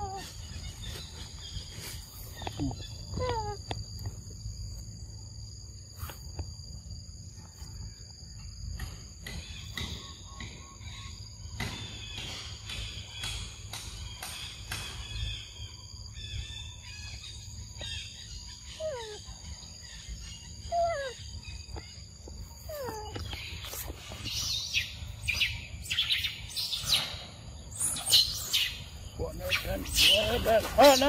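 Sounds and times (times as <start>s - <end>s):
high bird chirping: 9.2s - 31.0s.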